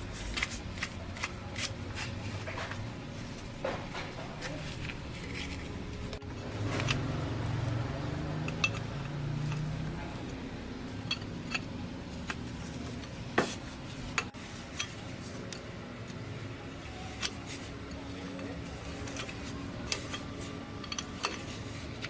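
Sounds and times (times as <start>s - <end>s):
metal tools clinking: 8.4s - 10.4s, 11.0s - 12.3s, 18.9s - 21.7s.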